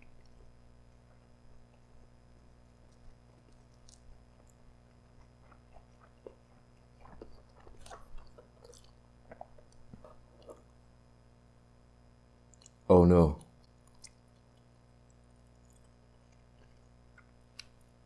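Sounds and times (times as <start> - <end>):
soft wet chewing: 0.0 - 11.1, 12.4 - 18.0
mouth clicks and smacks: 13.4 - 17.9.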